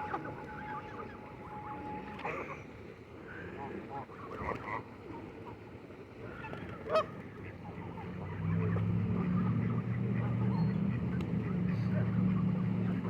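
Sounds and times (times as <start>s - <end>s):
loud honk: 0.0s - 2.4s
waterfowl calling: 0.0s - 2.6s
low steady hum: 0.0s - 6.4s.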